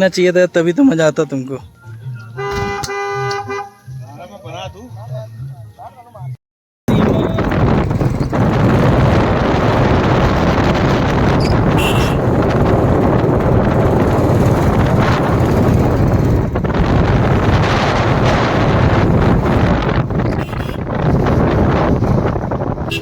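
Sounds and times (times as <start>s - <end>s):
motorcycle engine running: 6.9s - 23.0s
wind buffeting microphone: 6.9s - 23.0s.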